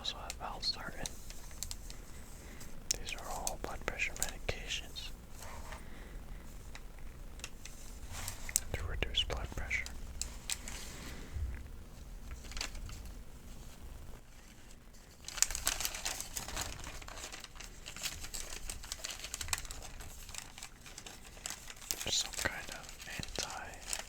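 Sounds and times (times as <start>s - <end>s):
paper sheets crinkling: 0.0s - 24.0s.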